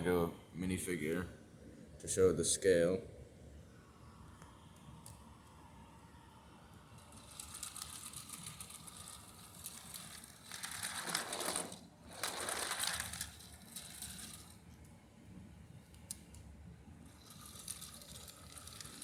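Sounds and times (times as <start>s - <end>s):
plastic bricks clattering: 17.2s - 19.0s.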